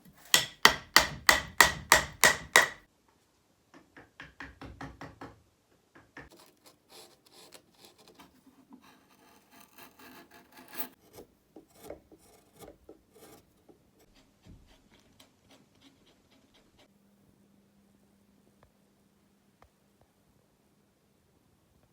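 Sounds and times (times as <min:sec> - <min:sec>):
hand rasp scraping wood: 0:06.3 - 0:16.9.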